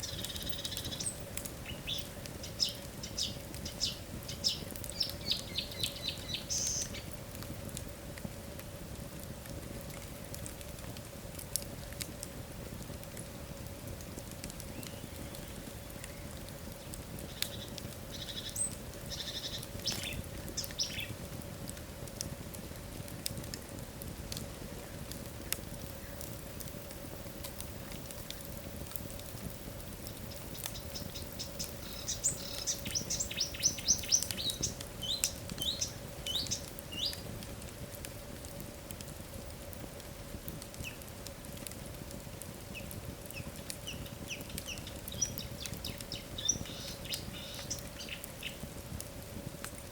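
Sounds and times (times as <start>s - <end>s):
small birds chirping: 0.0s - 7.1s, 14.6s - 21.2s, 29.4s - 37.3s, 42.7s - 48.7s
wood fire crackling and popping: 0.0s - 49.9s.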